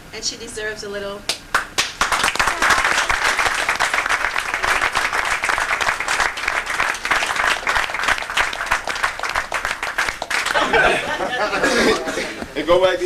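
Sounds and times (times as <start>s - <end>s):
people applauding: 1.5s - 11.9s.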